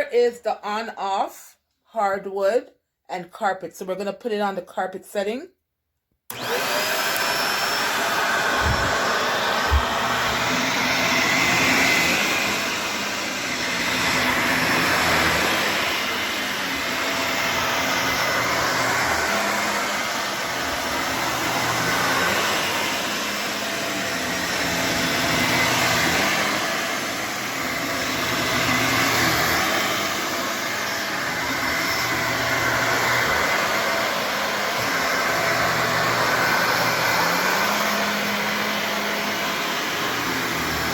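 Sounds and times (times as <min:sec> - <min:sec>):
upright vacuum cleaner running: 0:06.3 - 0:40.9.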